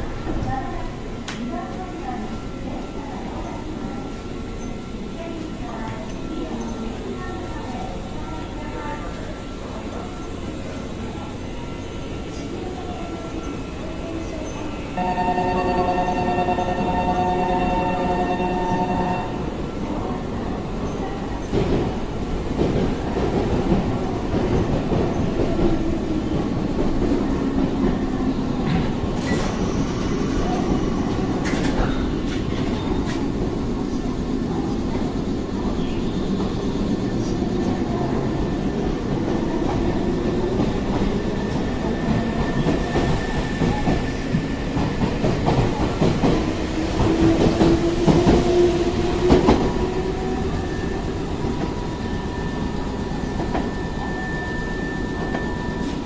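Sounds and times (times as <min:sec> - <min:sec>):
steady high tone: 0:14.9 - 0:19.8
train wheels clacking on rails: 0:21.3 - 0:33.5, 0:35.8 - 0:52.3.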